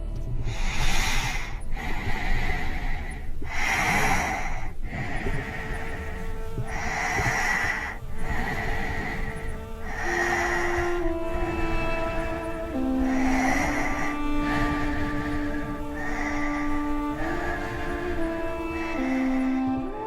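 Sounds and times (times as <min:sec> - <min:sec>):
faint sustained music tones: 0:00.0 - 0:20.0
person breathing heavily: 0:00.4 - 0:20.0.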